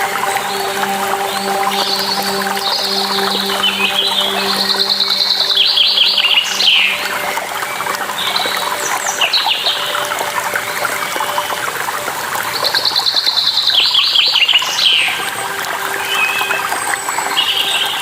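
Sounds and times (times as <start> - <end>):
songbirds singing: 0.0 - 11.7, 12.4 - 18.0
waterfall rushing: 0.0 - 18.0.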